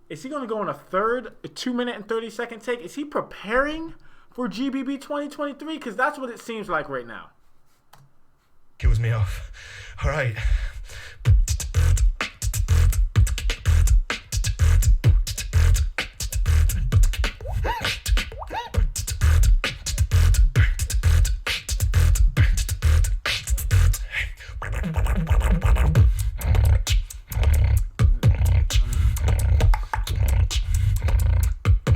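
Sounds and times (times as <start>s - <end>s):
person beatboxing: 10.1s - 31.9s
vocal pitch glides: 16.7s - 19.4s, 23.8s - 31.6s
scratch-like mouth sounds: 24.6s - 31.9s.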